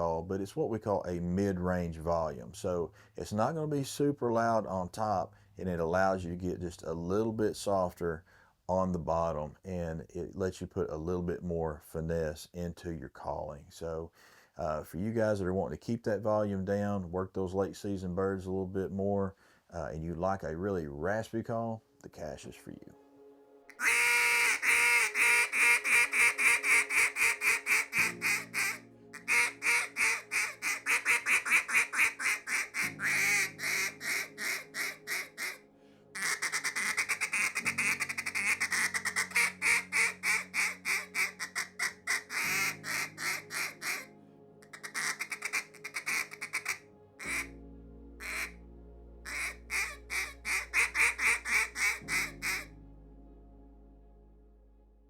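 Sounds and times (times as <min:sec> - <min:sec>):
soft background music: 0:00.0 - 0:13.1, 0:14.6 - 0:55.0
duck call raspy quacks: 0:23.7 - 0:35.6, 0:36.2 - 0:47.5, 0:48.2 - 0:48.6, 0:49.3 - 0:52.7.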